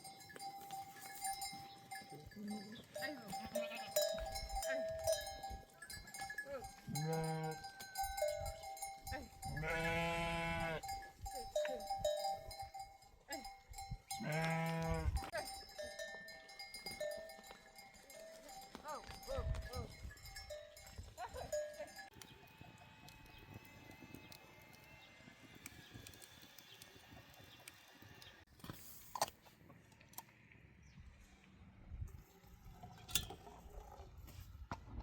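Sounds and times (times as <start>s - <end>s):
animal bells clinking: 0.0s - 25.1s
sheep or goats bleating: 2.2s - 5.0s, 6.6s - 7.8s, 9.1s - 10.9s, 14.1s - 15.6s.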